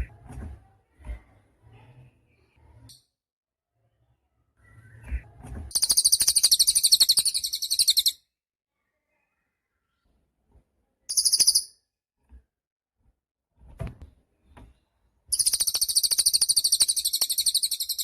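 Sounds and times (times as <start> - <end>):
songbird high-pitched trill: 5.7 - 8.1, 11.1 - 11.7, 15.3 - 18.0.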